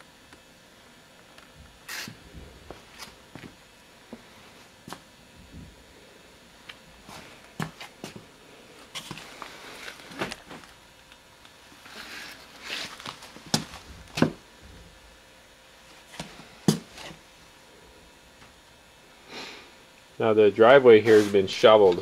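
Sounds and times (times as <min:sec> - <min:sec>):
knocks and scuffs of movement: 0:11.8 - 0:14.4.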